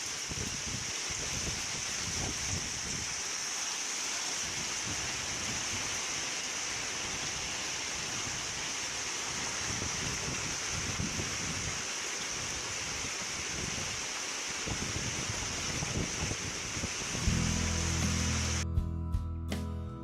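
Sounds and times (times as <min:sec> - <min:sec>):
wind hissing: 0:00.0 - 0:18.6
wind gusts buffeting microphone: 0:00.2 - 0:03.2, 0:07.1 - 0:14.0, 0:14.6 - 0:17.5.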